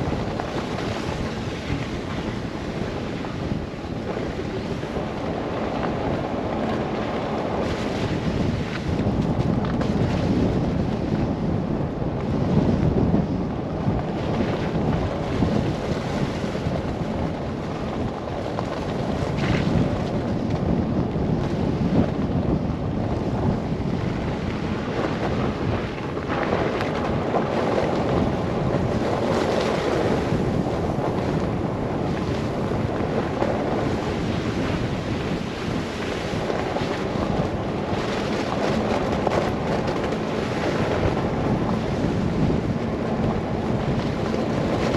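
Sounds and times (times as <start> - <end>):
blizzard wind buffeting microphone: 0.0 - 44.9.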